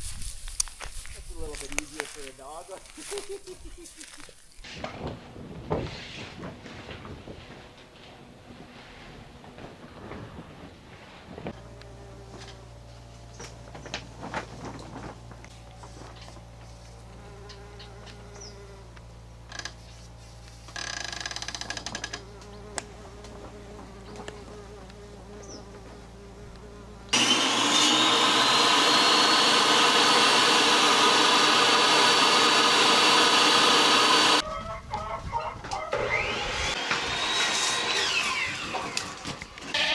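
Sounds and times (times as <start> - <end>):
electric motor whining: 20.6 - 34.4, 35.9 - 39.9.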